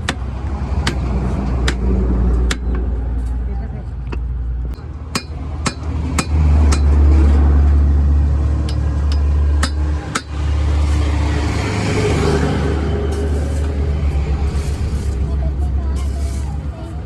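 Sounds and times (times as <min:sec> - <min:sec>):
hammer striking metal: 0:04.1 - 0:07.0, 0:08.6 - 0:10.4.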